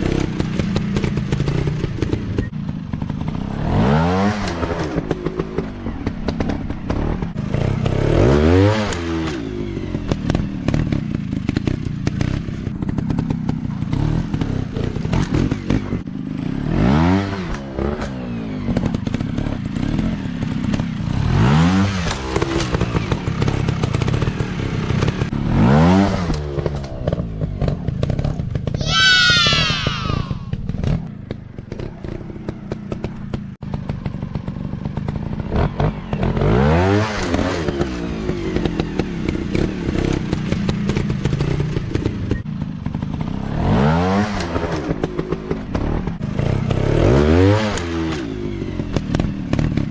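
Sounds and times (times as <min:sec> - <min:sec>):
dirt bike engines revving: 0:28.8 - 0:30.8.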